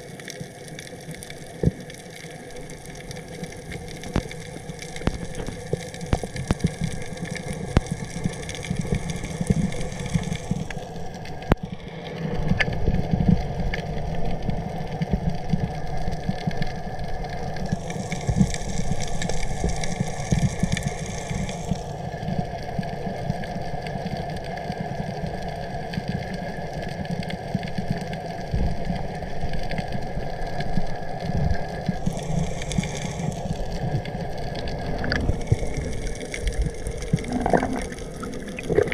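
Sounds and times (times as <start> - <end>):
underwater watery rumble: 0.0 - 38.9
underwater clicks: 3.0 - 10.8, 34.6 - 38.9.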